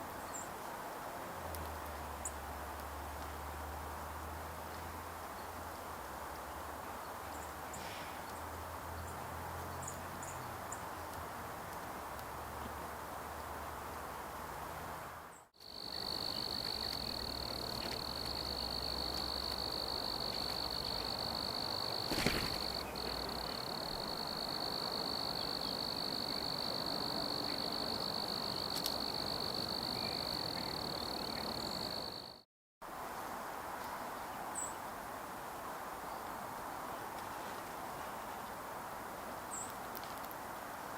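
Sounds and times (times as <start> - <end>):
low outdoor background: 0.0 - 40.9
high-pitched insect trill: 15.6 - 32.4.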